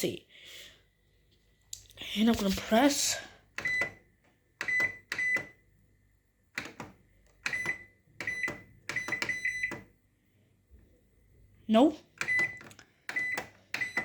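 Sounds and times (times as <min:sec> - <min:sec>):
microwave control panel beeping: 0:03.5 - 0:05.8, 0:06.5 - 0:10.0, 0:12.2 - 0:14.0.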